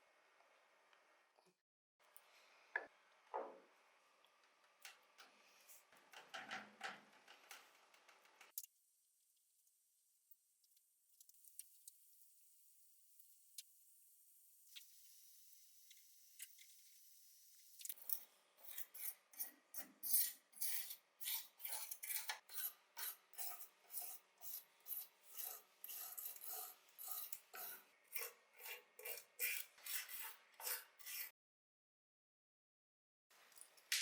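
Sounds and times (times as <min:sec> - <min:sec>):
hand sanding or filing strokes: 0:20.0 - 0:31.3.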